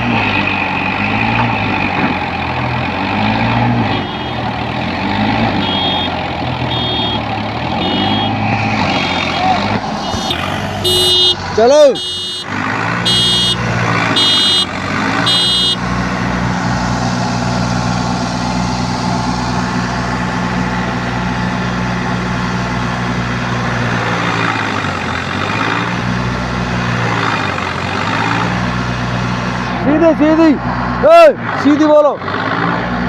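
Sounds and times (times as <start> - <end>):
tractor diesel engine under load: 0.0 - 33.0
short electronic beeps: 5.6 - 7.2, 7.8 - 8.7, 10.0 - 11.4, 12.0 - 12.5, 13.1 - 13.6, 14.2 - 15.8.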